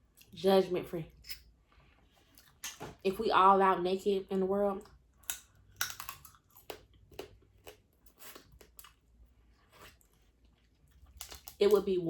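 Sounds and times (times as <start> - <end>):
chewing clicks and crunches: 4.8 - 9.1, 9.8 - 12.0.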